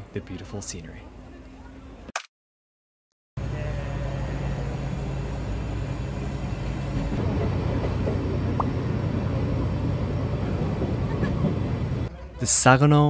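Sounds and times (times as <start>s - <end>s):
train rumbling: 3.4s - 12.4s.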